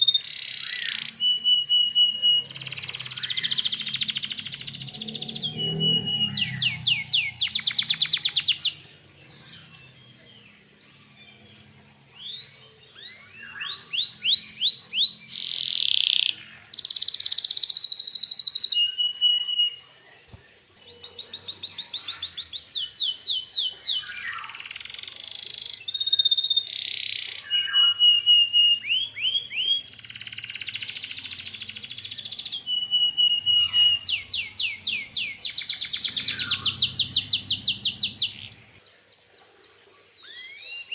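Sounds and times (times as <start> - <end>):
canary singing: 0.0 - 19.8, 20.9 - 38.8.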